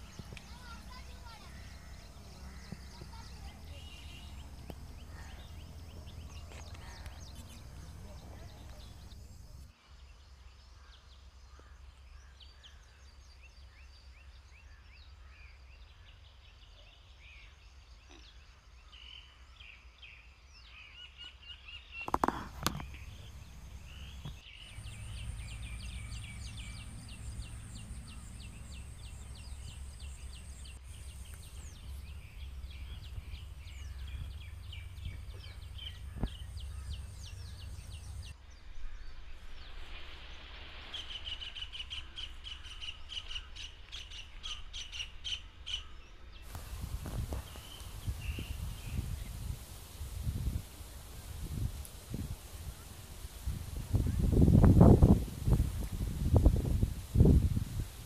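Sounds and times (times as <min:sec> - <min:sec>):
small birds chirping: 0:00.0 - 0:09.7, 0:15.8 - 0:39.9, 0:41.0 - 0:58.0
steady low rumble: 0:00.0 - 0:09.7, 0:22.5 - 0:38.4, 0:46.5 - 0:58.0.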